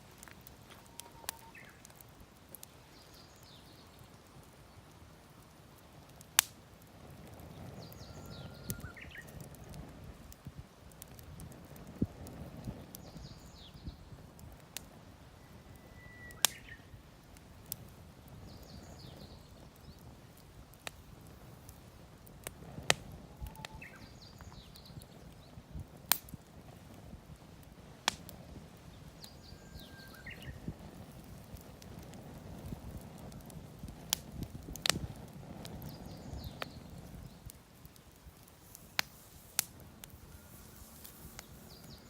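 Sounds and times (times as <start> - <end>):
wood fire crackling and popping: 0.0 - 42.0
bird chirping: 29.2 - 30.6, 40.3 - 42.0.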